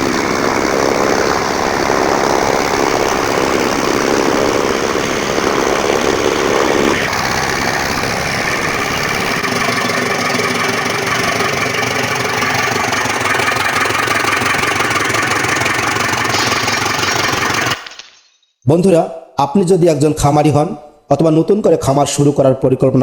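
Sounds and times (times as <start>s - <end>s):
chaff-cutting machine running: 0.0s - 18.1s.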